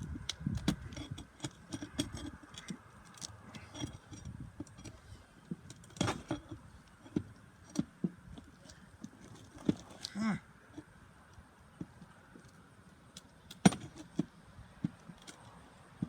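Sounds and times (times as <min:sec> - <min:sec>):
hand tools on roof shingles: 0:00.0 - 0:10.1, 0:13.5 - 0:15.4.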